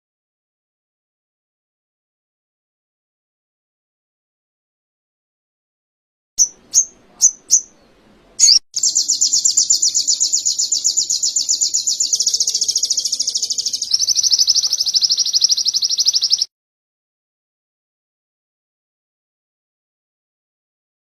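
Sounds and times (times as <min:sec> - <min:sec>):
songbird chirps and trill: 0:06.4 - 0:16.5.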